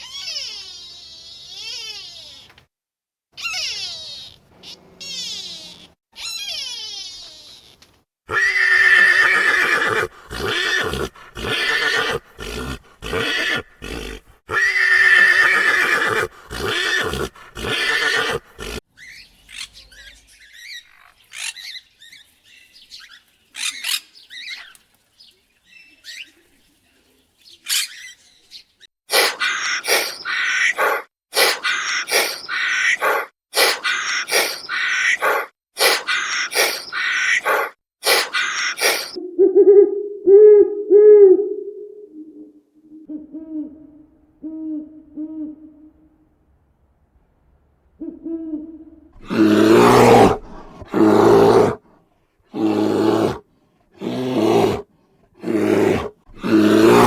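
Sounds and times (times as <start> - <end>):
short animal calls: 3.4 - 18.8, 29.1 - 39.2
animal wavering call: 29.8 - 46.1, 48.0 - 51.8.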